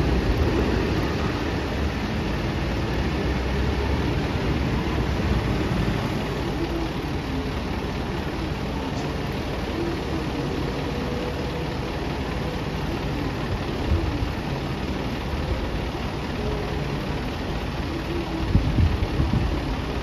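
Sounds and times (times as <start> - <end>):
bus engine running: 0.0 - 20.0.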